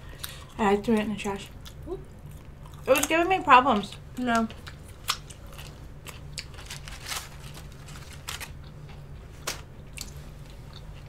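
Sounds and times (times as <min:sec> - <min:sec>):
crunchy chewing: 0:00.1 - 0:11.0.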